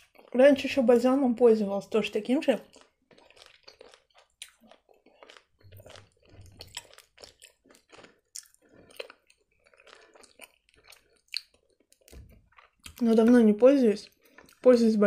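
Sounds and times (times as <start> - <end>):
chewing gummy candy: 0.0 - 15.0
mouth clicks and smacks: 2.6 - 13.4.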